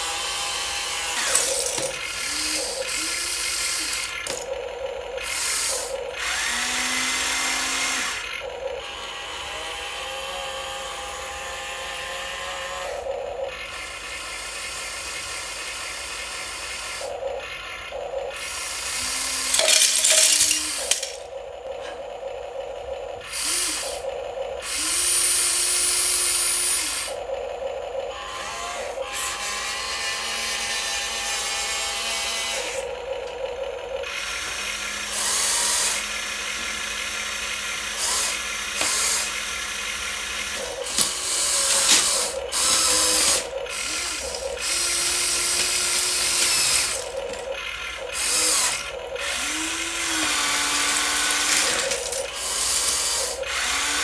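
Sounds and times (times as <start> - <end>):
toy electric motors whirring: 0.0 - 54.0.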